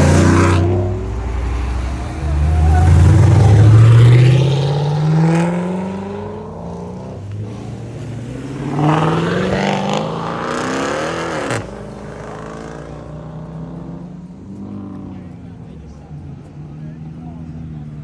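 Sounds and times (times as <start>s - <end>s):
car engine revving hard: 0.0s - 18.0s.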